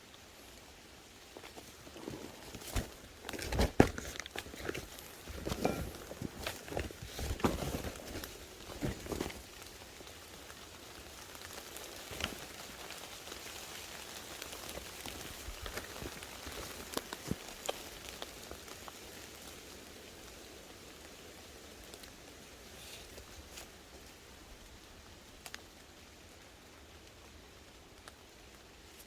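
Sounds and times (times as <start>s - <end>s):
rain falling: 0.0s - 29.0s
raindrop ticks: 25.2s - 25.9s.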